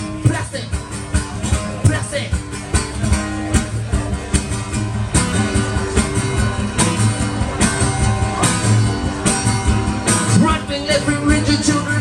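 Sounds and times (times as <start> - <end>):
rock band playing: 0.0 - 12.0
strummed guitar: 0.0 - 12.0.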